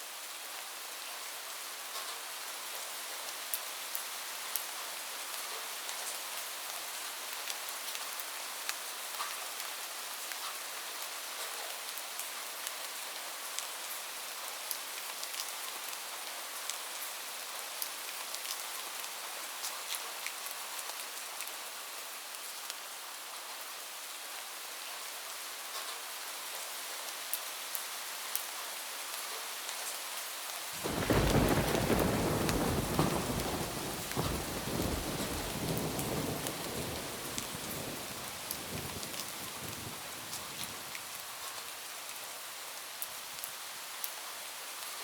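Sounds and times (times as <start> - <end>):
rain falling on a roof: 0.0 - 45.0
thunder rumble: 30.8 - 40.9.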